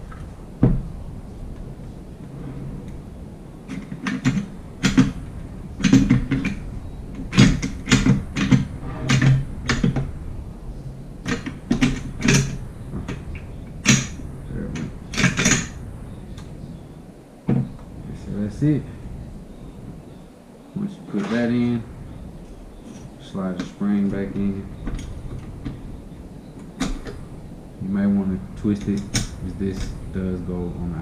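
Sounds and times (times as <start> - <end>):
metal parts clicking and knocking: 5.8 - 6.6, 7.2 - 10.0, 14.8 - 15.7.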